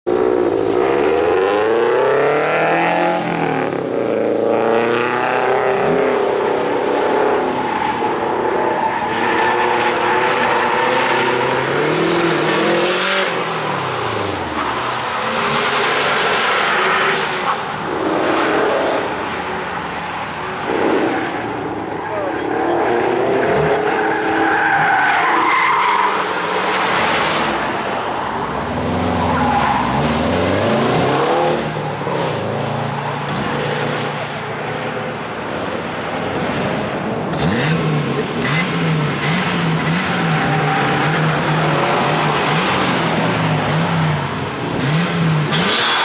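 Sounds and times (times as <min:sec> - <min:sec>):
car engine revving: 0:37.3 - 0:46.0.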